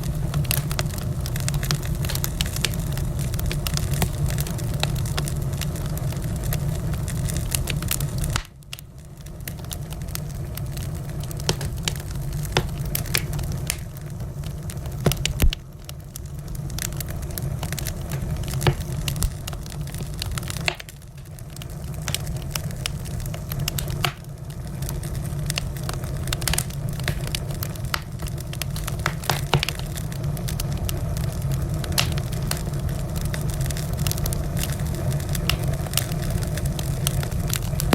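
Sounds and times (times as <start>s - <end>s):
low rumble of burning: 0.0s - 37.9s
wood fire crackling: 0.0s - 37.9s
sharp pops and snaps: 11.4s - 14.0s, 14.9s - 15.6s, 17.6s - 21.0s, 22.0s - 24.3s, 26.4s - 30.0s, 32.0s - 32.6s.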